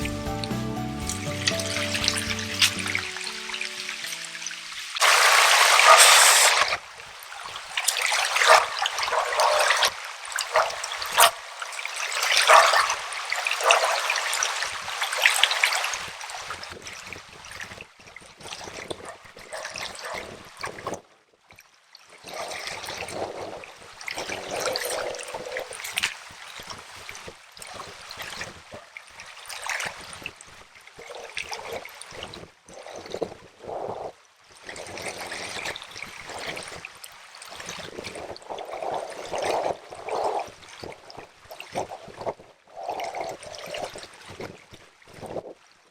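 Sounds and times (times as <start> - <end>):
river trickling over stones: 1.0 - 17.6, 21.7 - 33.4, 34.4 - 42.4.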